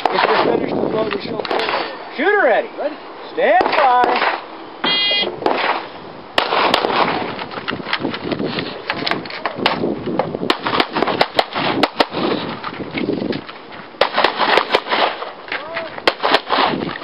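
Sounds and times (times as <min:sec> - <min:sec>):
gunshots: 0:00.0 - 0:00.7, 0:03.5 - 0:04.4, 0:05.1 - 0:07.3, 0:10.5 - 0:12.4, 0:14.0 - 0:15.3, 0:16.0 - 0:16.9.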